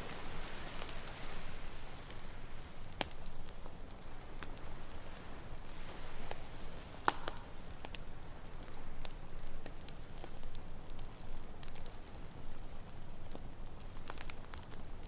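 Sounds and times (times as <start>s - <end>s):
ocean waves: 0.0s - 2.9s
campfire crackling: 0.0s - 15.0s
sharp pops of fire: 0.0s - 15.0s.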